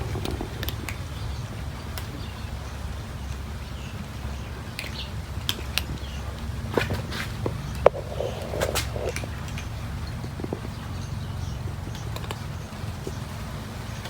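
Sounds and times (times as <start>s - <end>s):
cats eating: 0.0s - 14.0s
steady low rumble: 0.0s - 14.0s
sharp clicks: 11.9s - 13.2s.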